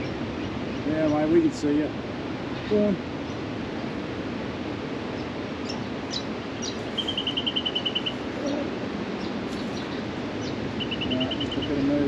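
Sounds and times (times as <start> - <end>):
steady background rush: 0.0 - 12.0
fast bird trill: 5.6 - 11.9.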